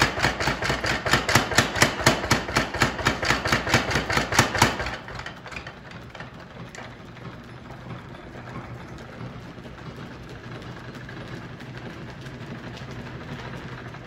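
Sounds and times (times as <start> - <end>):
low mechanical hum: 4.6 - 14.0.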